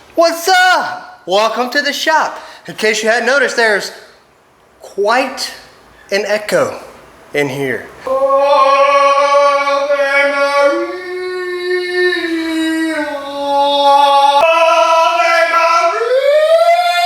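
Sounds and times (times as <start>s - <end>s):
person singing long notes: 8.1s - 17.0s.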